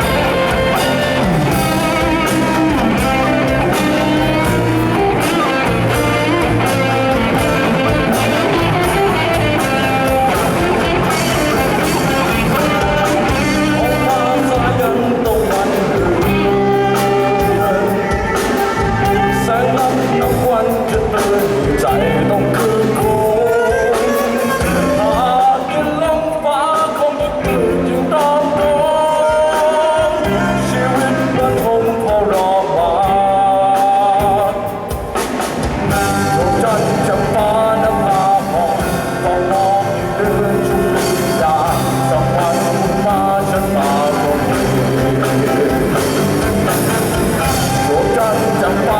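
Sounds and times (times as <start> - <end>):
person singing: 0.0 - 48.9
rock band guitar: 0.0 - 48.9.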